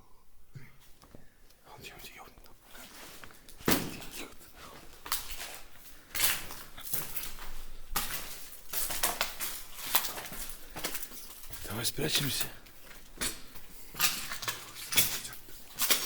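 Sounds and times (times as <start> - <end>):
debris and rubble clattering: 5.1 - 16.0.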